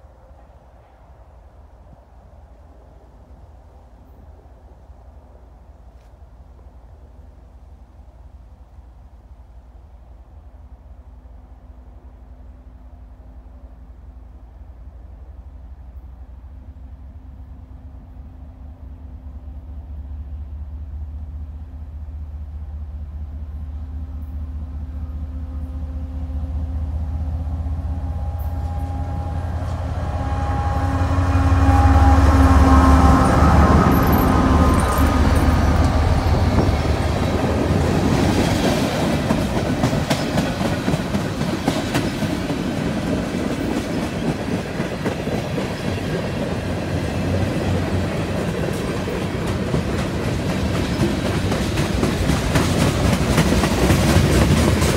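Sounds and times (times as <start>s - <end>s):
locomotive engines droning: 0.0s - 54.9s
wheels clicking over rail joints: 33.8s - 54.9s.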